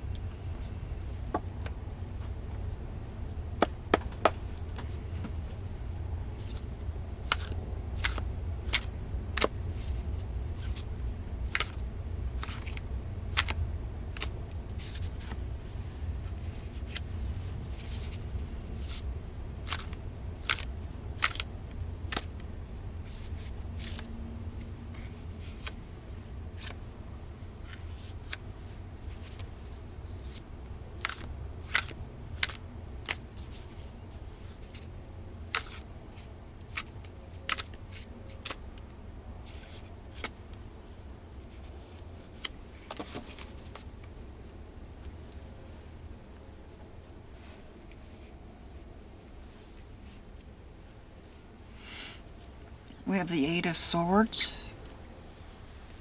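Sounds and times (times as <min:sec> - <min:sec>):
steady low hum: 0:00.0 - 0:56.0
cards being shuffled: 0:06.4 - 0:11.8, 0:12.4 - 0:15.4, 0:16.6 - 0:24.2, 0:25.0 - 0:25.8, 0:26.5 - 0:26.8, 0:27.6 - 0:34.9, 0:35.5 - 0:38.8, 0:39.4 - 0:40.7, 0:41.4 - 0:44.2.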